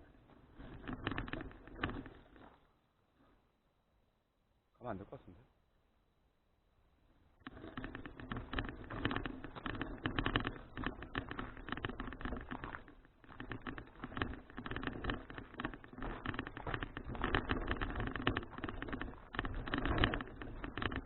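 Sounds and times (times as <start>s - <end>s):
bicycle road rattle: 0.0s - 2.8s, 7.4s - 21.0s.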